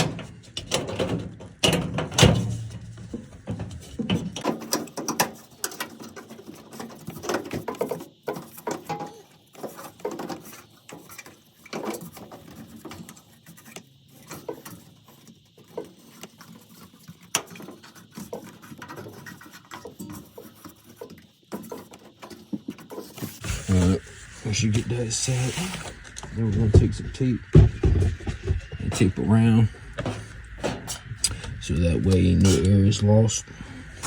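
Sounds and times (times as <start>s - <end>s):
sheet metal clicks and scrapes: 0.0s - 23.5s.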